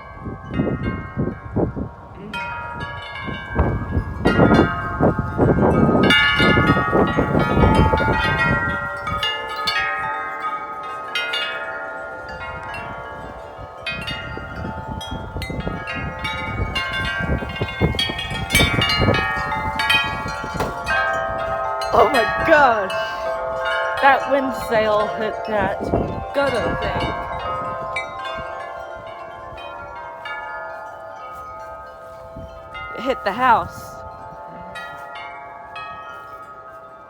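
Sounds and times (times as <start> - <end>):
low wind rumble: 0.0 - 10.2, 12.3 - 30.4
wind chimes clanging: 0.0 - 37.0.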